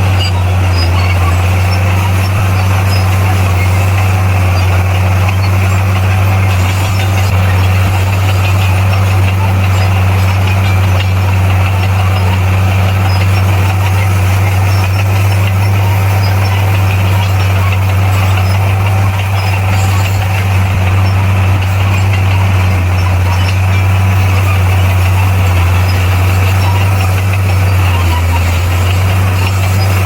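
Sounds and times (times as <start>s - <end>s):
bulldozer diesel engine running: 0.0s - 30.0s.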